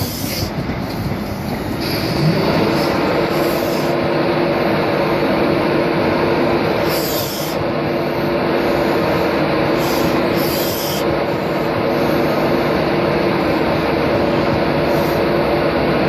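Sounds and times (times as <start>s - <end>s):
train coaches rolling past: 0.0s - 16.0s
train engine hum: 0.0s - 16.0s
high-pitched rasps: 8.6s - 12.8s.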